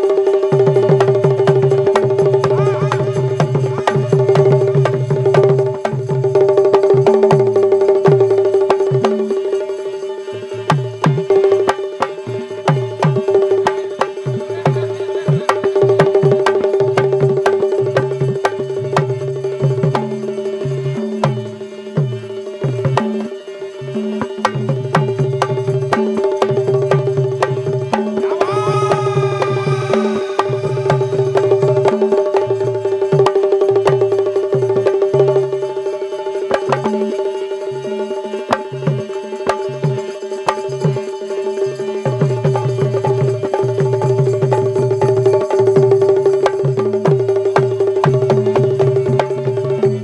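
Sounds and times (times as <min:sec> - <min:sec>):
fast folk drumming: 0:00.0 - 0:50.0
held drone: 0:01.2 - 0:05.8, 0:28.2 - 0:33.0
sliding melodic phrase: 0:28.2 - 0:32.7.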